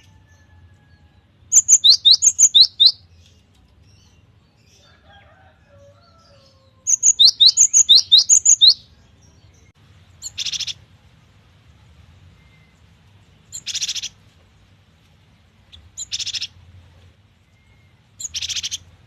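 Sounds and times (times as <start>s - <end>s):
bird chirping rapidly: 1.5s - 3.1s, 6.3s - 9.0s, 10.1s - 10.8s, 13.4s - 14.2s, 15.7s - 16.6s, 18.2s - 19.0s.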